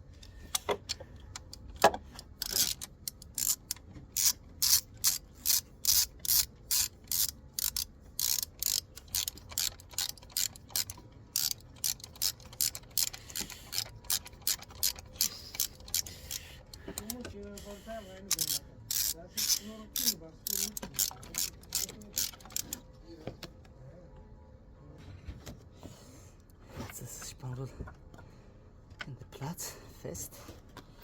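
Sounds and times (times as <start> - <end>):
ratchet wrench clicking: 1.5 - 22.8.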